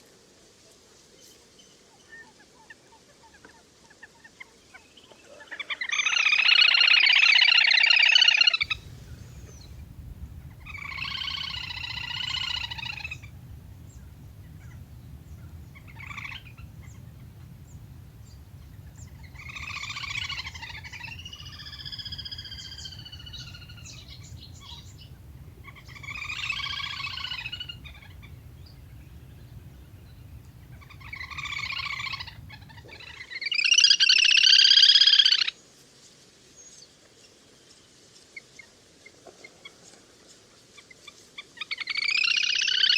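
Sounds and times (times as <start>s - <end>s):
whistling duck calls: 6.6s - 33.2s
low steady hum: 8.6s - 33.1s.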